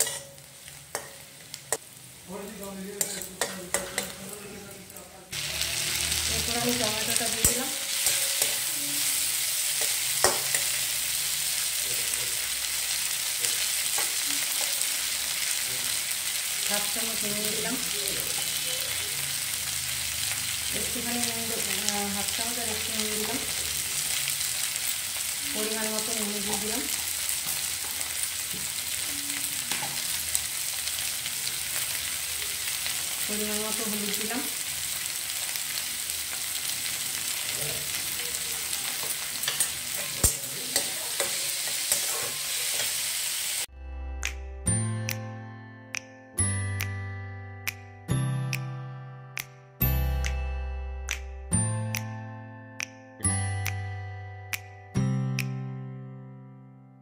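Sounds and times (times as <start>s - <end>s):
metal spatula scraping pan: 0.0s - 0.4s, 38.8s - 43.1s
vegetables sizzling in oil: 0.0s - 43.7s.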